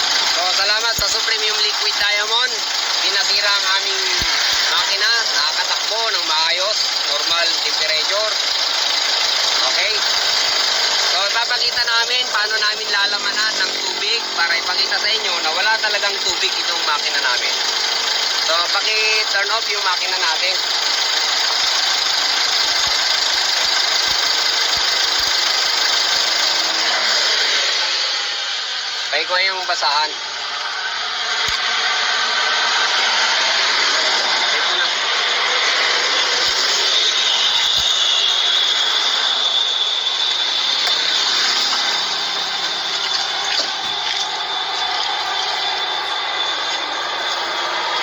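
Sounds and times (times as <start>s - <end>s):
engine running: 0.0s - 48.0s
steam hissing: 0.0s - 48.0s.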